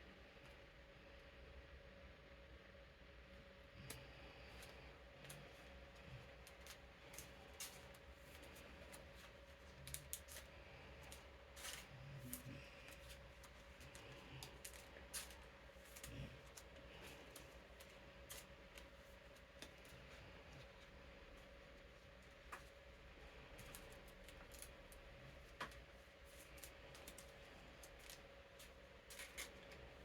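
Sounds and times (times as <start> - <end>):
plastic card sleeves crinkling: 5.3 - 20.9, 26.3 - 30.0.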